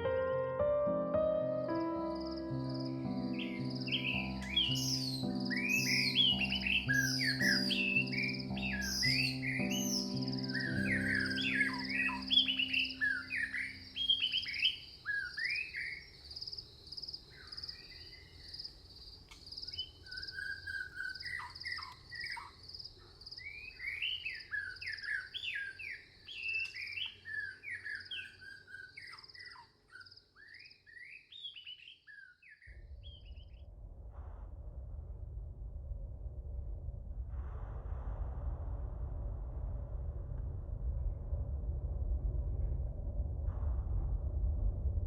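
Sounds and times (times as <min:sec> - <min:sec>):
low rumble: 0:00.0 - 0:14.2, 0:32.7 - 0:45.0
songbirds chirping and singing: 0:01.2 - 0:16.6, 0:19.3 - 0:33.5.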